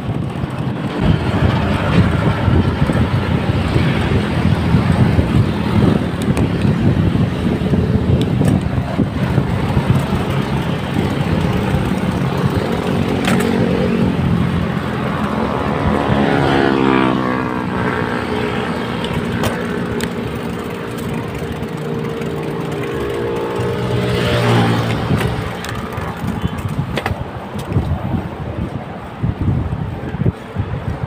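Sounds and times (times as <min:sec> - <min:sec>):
road traffic: 0:00.0 - 0:31.0
wind rumbling on microphone: 0:00.0 - 0:31.0
vehicle passing by: 0:08.8 - 0:26.9.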